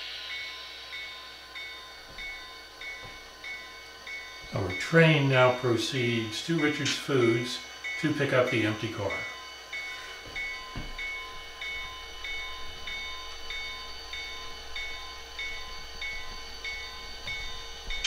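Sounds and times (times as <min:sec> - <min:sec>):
locomotive bell ringing: 0:00.0 - 0:18.0
soft low knock: 0:10.3 - 0:11.1.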